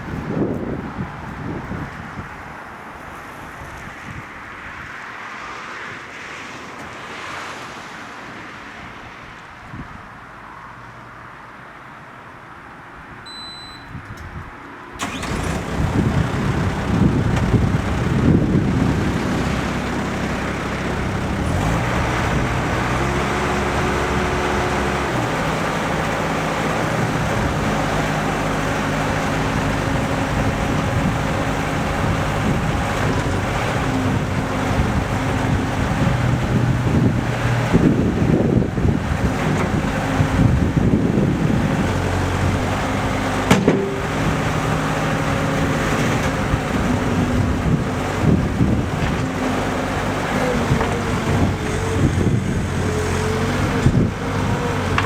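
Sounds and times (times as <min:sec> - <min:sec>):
warning beeps: 0:13.3 - 0:13.9
diesel engine starting and running: 0:14.9 - 0:55.0.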